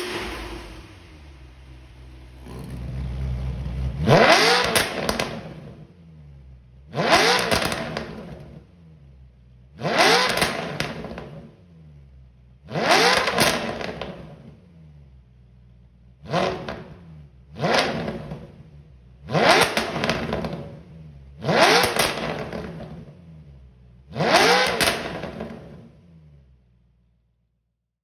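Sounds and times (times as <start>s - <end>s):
car engine revving: 0.0s - 26.7s.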